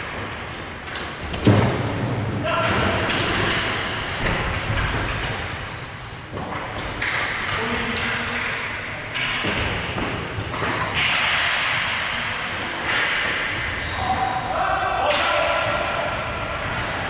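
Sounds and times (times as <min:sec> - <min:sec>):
noisy echoing background: 0:00.0 - 0:17.0
sticks and puck knocking boards: 0:06.3 - 0:13.6.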